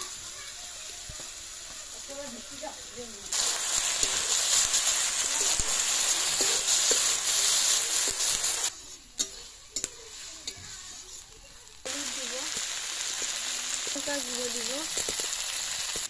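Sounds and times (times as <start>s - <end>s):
spice paste sizzling in hot oil: 0.0s - 16.0s
metal spatula clicking on pan: 9.2s - 10.6s.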